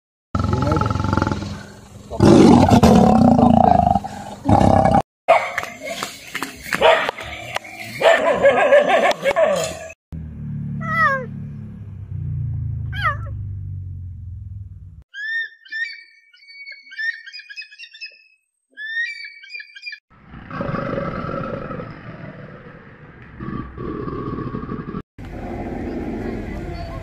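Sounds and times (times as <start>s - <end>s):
cheetah chirp: 15.1s - 20.0s
young kestrels calling: 15.2s - 20.0s.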